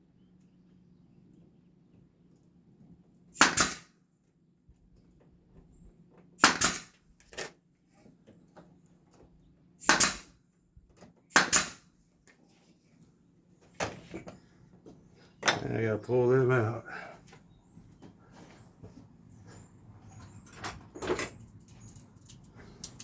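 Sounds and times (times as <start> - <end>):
nail gun shots into wood: 3.4 - 3.9, 6.4 - 7.0, 9.8 - 10.4, 11.3 - 11.9.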